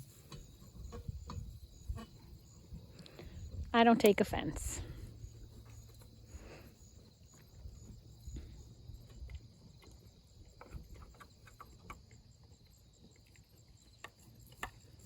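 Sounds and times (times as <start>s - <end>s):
insects trilling: 0.0s - 15.0s
wind rumble on microphone: 0.6s - 5.3s.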